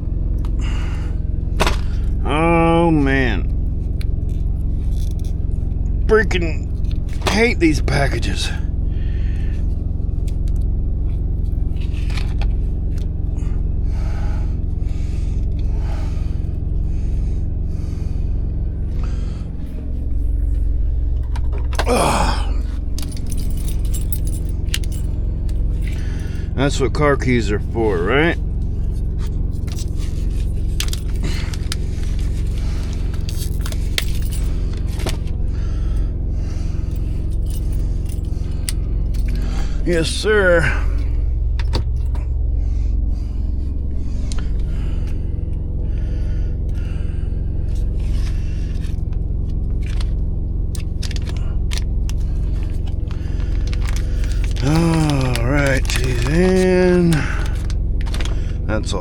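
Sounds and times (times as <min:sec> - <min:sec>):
small diesel engine droning: 0:00.0 - 0:59.0
keys jingling and scraping: 0:03.3 - 0:05.5, 0:19.4 - 0:26.8, 0:27.6 - 0:45.2, 0:47.7 - 0:58.6
plastic packaging being torn open: 0:50.8 - 0:58.4.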